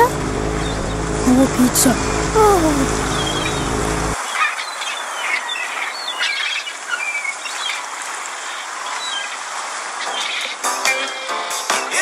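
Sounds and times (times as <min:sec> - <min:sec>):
low steady hum: 0:00.0 - 0:04.2
small birds chirping: 0:00.5 - 0:01.1, 0:01.7 - 0:11.3.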